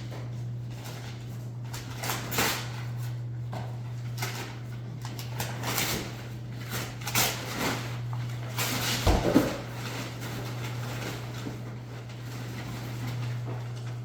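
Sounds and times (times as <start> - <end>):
present wrapping rustling: 3.8 - 14.0.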